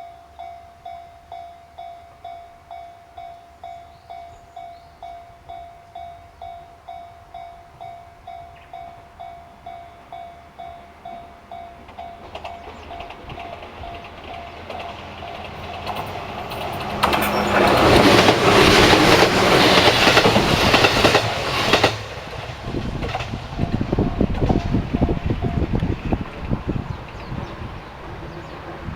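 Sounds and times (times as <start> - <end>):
level crossing warning bell: 0.0 - 20.2
train passing: 0.0 - 28.9.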